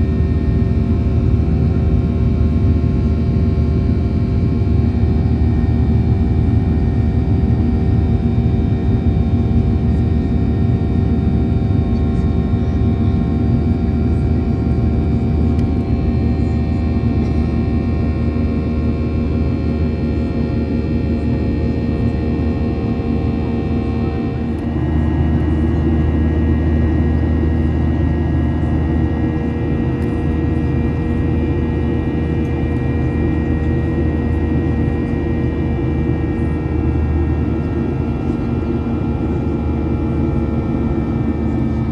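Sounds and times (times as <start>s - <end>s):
airplane cabin engine drone: 0.0s - 41.9s
deep rumble: 23.5s - 39.6s.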